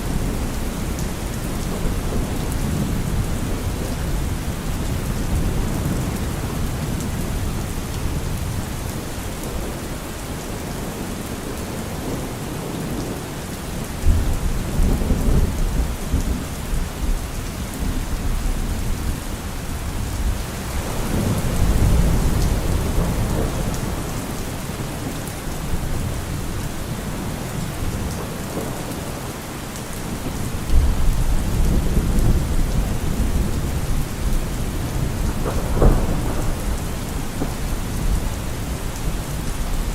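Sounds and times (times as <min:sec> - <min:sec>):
heavy rain: 0:00.0 - 0:39.9
rolling thunder: 0:14.0 - 0:29.3, 0:30.1 - 0:39.9.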